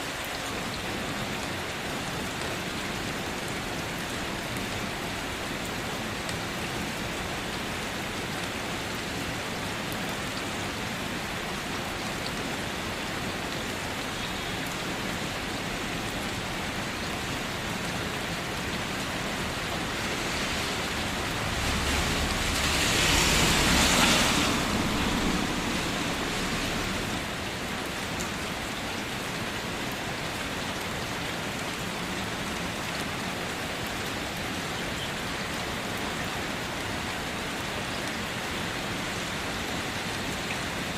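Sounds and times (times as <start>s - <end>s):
rain falling on a car: 0.0s - 40.9s
low rumble: 19.8s - 27.2s.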